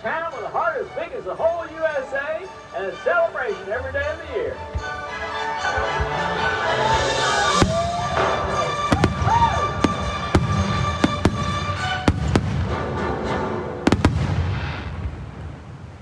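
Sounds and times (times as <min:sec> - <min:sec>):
fireworks shells bursting: 0:07.4 - 0:15.6.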